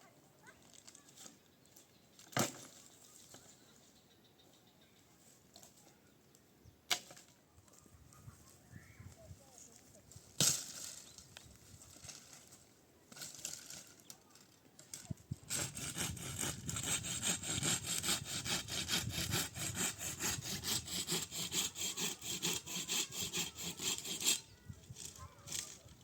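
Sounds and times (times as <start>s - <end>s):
hand saw cutting wood: 15.3s - 25.8s.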